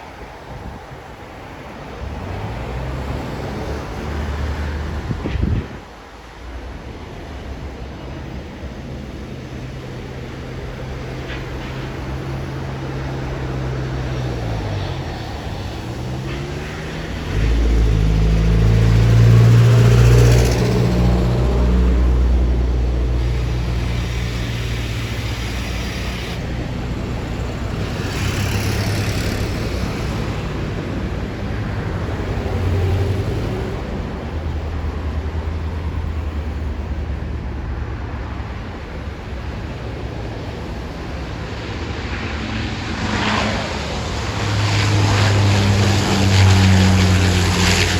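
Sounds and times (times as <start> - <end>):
jet airliner engines rumbling: 0.0 - 47.9.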